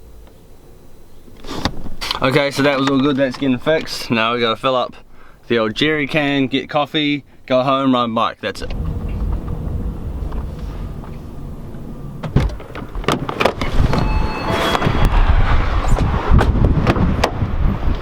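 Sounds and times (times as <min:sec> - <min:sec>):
car engine rumbling: 0:00.0 - 0:18.0.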